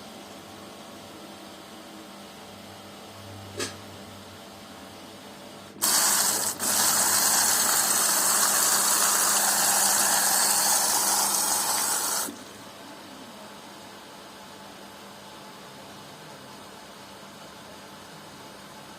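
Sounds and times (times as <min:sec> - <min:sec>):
water rushing into washing machine: 0:05.8 - 0:12.5.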